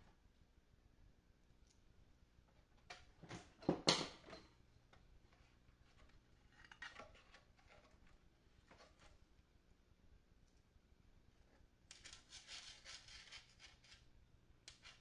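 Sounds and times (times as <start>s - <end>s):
small tools clattering on workbench: 2.9s - 4.6s.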